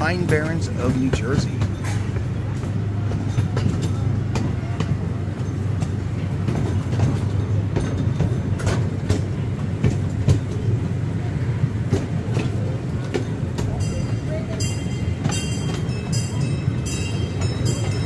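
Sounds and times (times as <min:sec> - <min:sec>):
miniature train rumbling: 0:00.0 - 0:18.0
wheels clacking over rails: 0:00.0 - 0:18.0.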